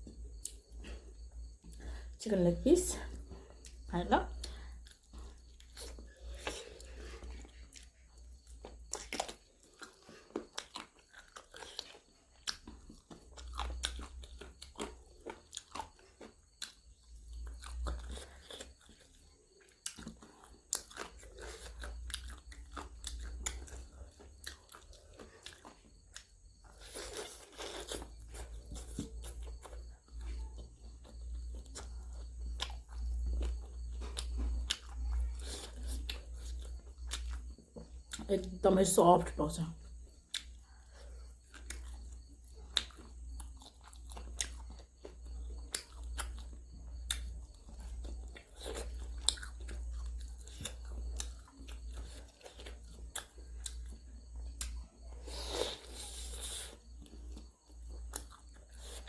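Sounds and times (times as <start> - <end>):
chewing crunchy chicken: 0.0 - 38.6, 39.4 - 59.0.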